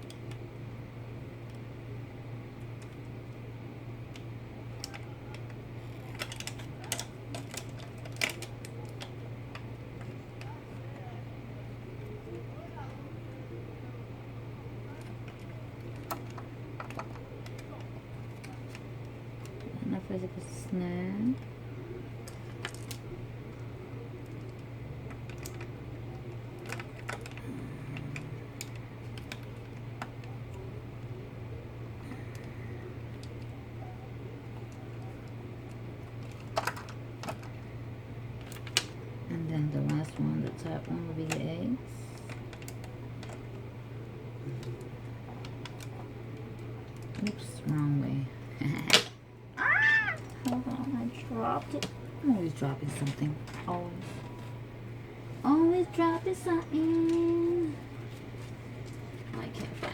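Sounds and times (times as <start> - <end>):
steady low hum: 0.0 - 59.9
plastic parts clicking: 4.1 - 10.2, 26.6 - 27.4, 36.2 - 37.6.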